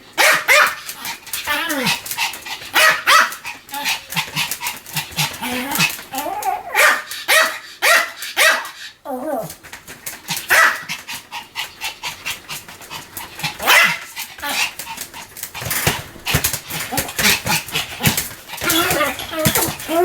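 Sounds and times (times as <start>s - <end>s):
small dog barking high-pitched: 0.2s - 0.8s, 2.8s - 3.4s, 6.3s - 8.7s, 10.5s - 10.9s, 13.6s - 14.1s.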